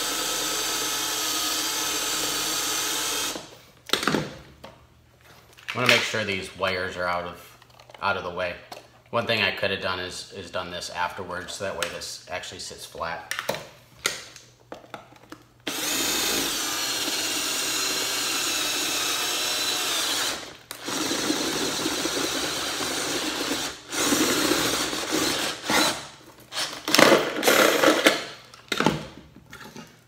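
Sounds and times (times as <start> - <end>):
electric drill boring metal: 0.0 - 3.4, 15.7 - 26.0.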